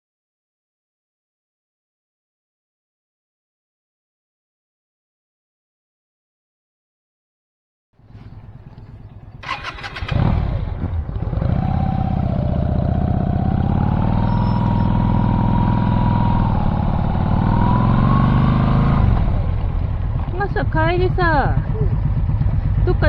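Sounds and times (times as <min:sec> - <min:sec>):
engine running with whine: 0:08.0 - 0:23.0.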